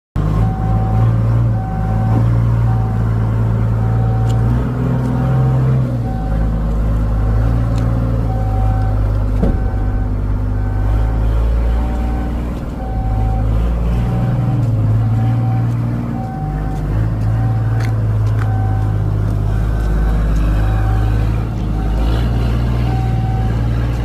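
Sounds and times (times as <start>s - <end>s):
large engine running and revving: 0.2s - 24.0s.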